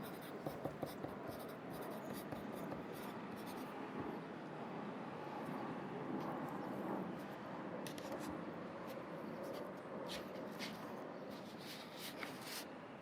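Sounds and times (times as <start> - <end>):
pencil scratching on paper: 0.0 - 3.7
city ambience hum: 0.0 - 13.0.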